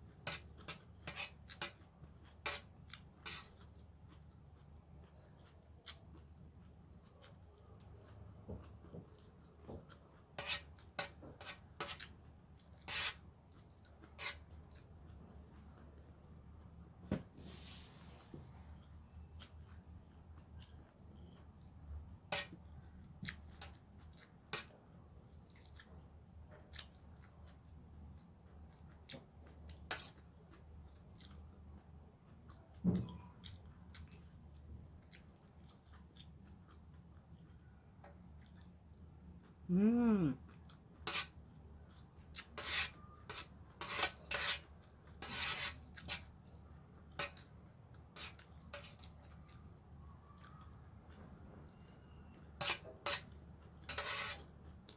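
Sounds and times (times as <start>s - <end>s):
faint low hum: 0.0s - 54.9s
utensils scraping a salad bowl: 0.2s - 1.8s, 2.4s - 3.6s, 10.4s - 12.1s, 12.8s - 13.2s, 14.1s - 14.5s, 41.0s - 41.4s, 42.4s - 46.3s, 48.1s - 49.1s, 52.6s - 54.5s
wet mouth chewing sounds: 25.3s - 26.0s, 26.6s - 34.3s, 34.9s - 38.8s
person humming: 39.7s - 40.4s.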